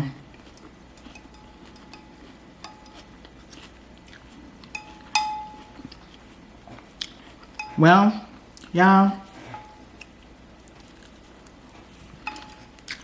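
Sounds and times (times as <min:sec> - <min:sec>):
cutlery clinking on dish: 0:04.7 - 0:05.8, 0:12.2 - 0:12.7
loud ringing clink: 0:04.8 - 0:05.8, 0:12.2 - 0:12.7.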